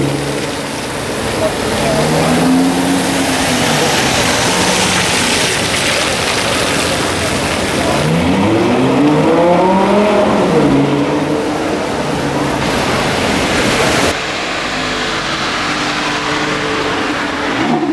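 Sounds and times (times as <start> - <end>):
tyre hiss on wet road: 0.0 - 8.2
car driving off: 0.0 - 17.9
car engine revving: 0.0 - 17.9.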